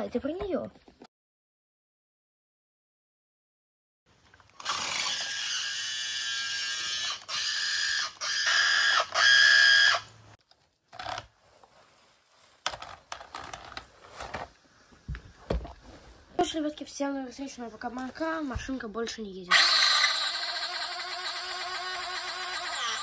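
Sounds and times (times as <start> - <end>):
toy car motor whirring and grinding: 4.6 - 10.1, 19.5 - 23.0.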